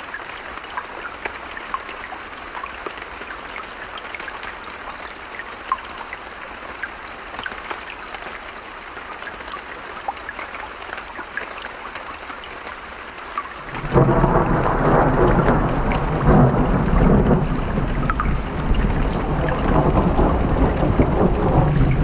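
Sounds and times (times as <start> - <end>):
rain falling: 0.0 - 22.0
raindrops ticking: 9.2 - 22.0.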